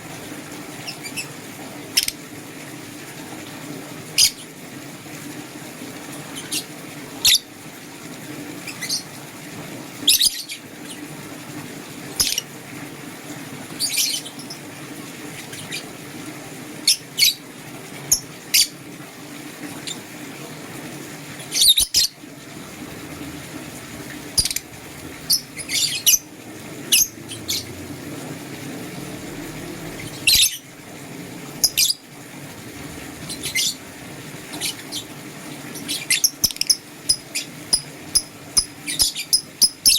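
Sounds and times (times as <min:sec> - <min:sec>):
lovebirds chirping: 0:25.2 - 0:26.3.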